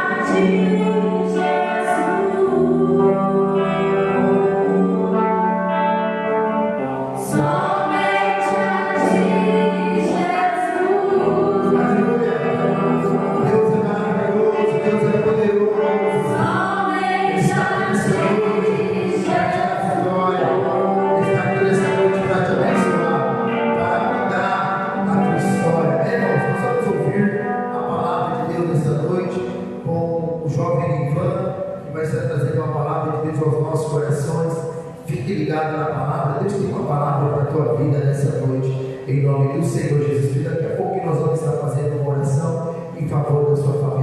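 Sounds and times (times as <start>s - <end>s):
choir singing gospel song: 0.0s - 30.2s.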